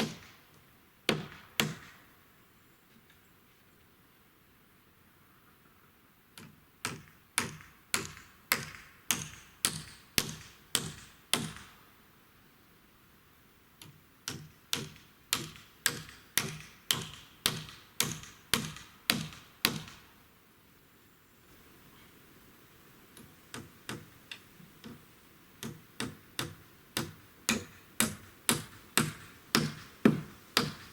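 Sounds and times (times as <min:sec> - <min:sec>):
hammer striking wood: 0:01.1 - 0:02.0, 0:06.8 - 0:11.7, 0:14.3 - 0:20.0, 0:25.6 - 0:30.9.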